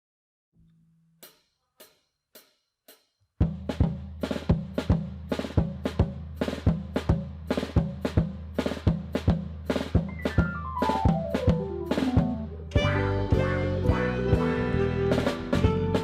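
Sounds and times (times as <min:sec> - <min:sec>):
drum kit playing: 0:03.4 - 0:16.0
steady bass: 0:10.1 - 0:16.0.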